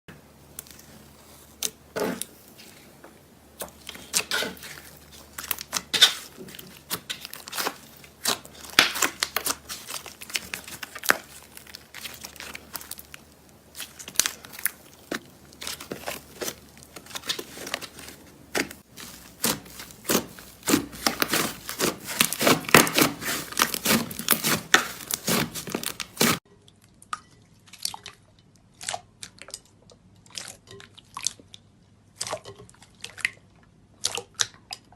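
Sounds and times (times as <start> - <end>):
slime crackling and popping: 3.6 - 26.4.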